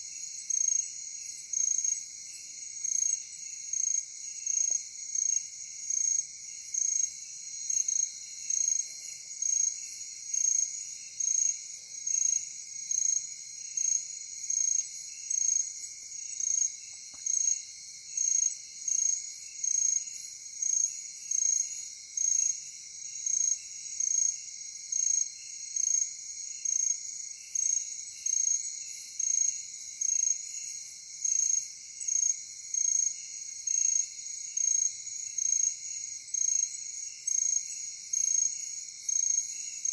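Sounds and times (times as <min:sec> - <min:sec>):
loud cricket chirp: 0:00.0 - 0:39.9.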